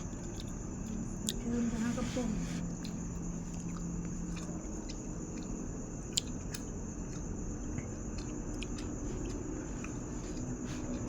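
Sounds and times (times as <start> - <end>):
person chewing food: 0.0 - 1.6, 2.6 - 11.0
wet mouth clicks: 3.7 - 6.7.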